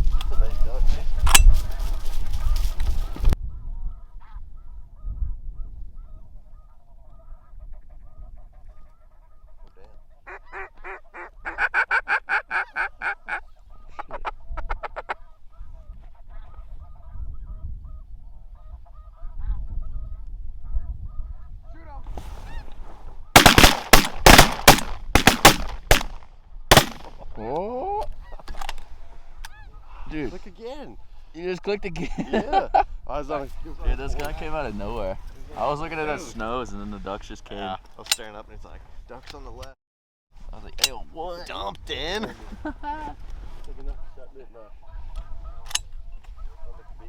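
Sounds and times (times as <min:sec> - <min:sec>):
geese calling: 0:06.0 - 0:20.2, 0:28.1 - 0:30.3
shotgun shots: 0:23.4 - 0:27.2.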